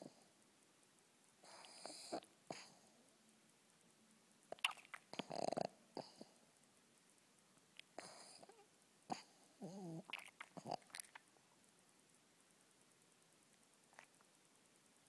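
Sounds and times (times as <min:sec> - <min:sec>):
dog snoring and snorting: 0:01.4 - 0:02.8, 0:04.6 - 0:06.3, 0:08.0 - 0:11.0.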